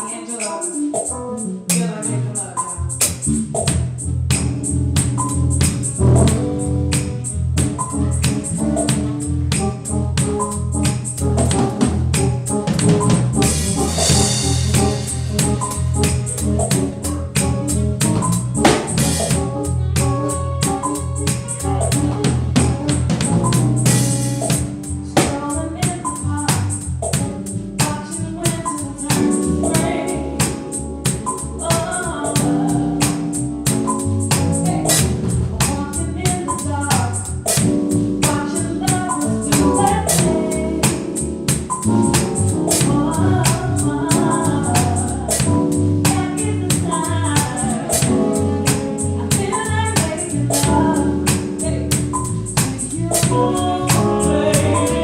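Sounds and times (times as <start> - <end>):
band playing music: 0.0 - 55.0
steady drum beat: 1.7 - 55.0
person singing: 38.2 - 55.0.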